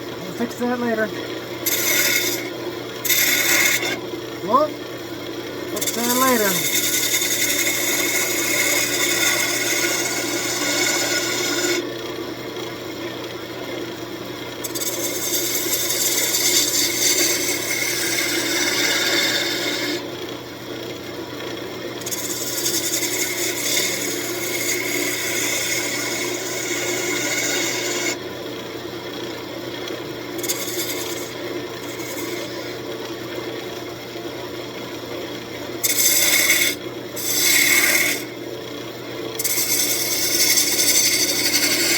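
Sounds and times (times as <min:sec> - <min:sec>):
wood lathe motor humming: 0:00.0 - 0:34.1, 0:34.7 - 0:41.9
tool scraping spinning wood: 0:00.1 - 0:04.8, 0:05.5 - 0:11.9, 0:14.6 - 0:20.1, 0:22.0 - 0:28.2, 0:30.3 - 0:32.9, 0:35.8 - 0:38.4, 0:39.3 - 0:41.9.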